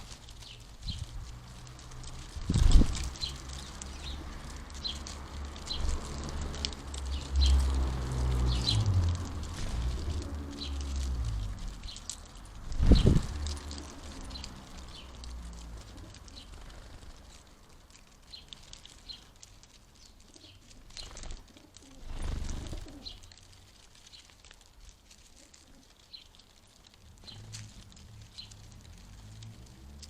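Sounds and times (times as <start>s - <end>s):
small birds chirping: 0.0s - 30.0s
pigeon cooing: 20.3s - 23.2s.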